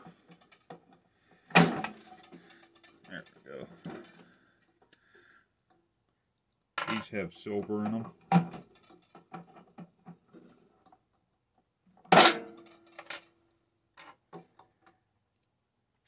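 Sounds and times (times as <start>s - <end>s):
small parts clicking and tapping: 0.0s - 5.0s, 6.5s - 10.2s, 12.2s - 13.4s.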